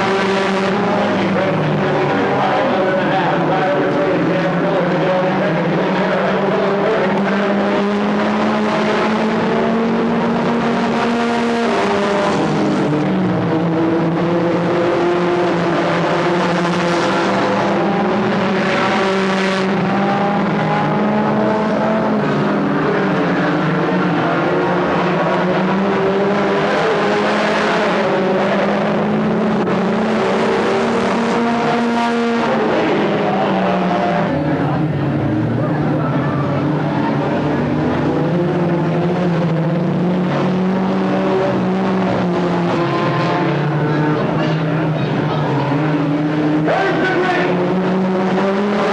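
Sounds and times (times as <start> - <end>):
stock car engines racing: 0.0 - 48.9.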